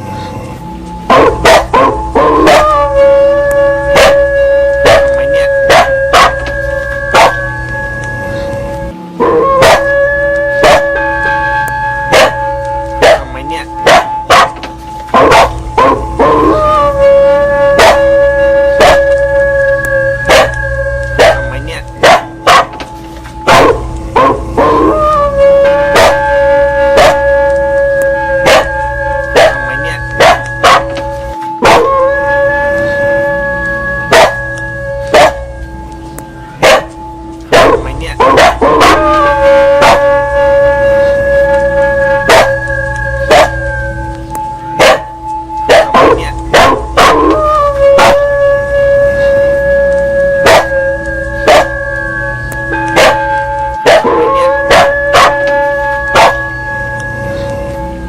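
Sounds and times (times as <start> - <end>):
temple bell ringing: 0.0 - 58.0
dog barking: 1.1 - 2.9, 3.9 - 6.5, 7.1 - 7.4, 9.2 - 9.9, 10.6 - 11.4, 12.1 - 12.4, 13.0 - 16.1, 17.8 - 18.1, 18.7 - 19.2, 20.2 - 22.8, 23.5 - 25.0, 25.9 - 26.3, 26.9 - 27.3, 28.4 - 31.0, 31.6 - 32.0, 34.1 - 34.4, 35.1 - 35.4, 36.6 - 39.1, 42.2 - 42.6, 43.2 - 43.7, 44.8 - 47.4, 48.0 - 48.2, 50.4 - 50.7, 51.4 - 51.8, 52.9 - 55.4, 56.1 - 56.4.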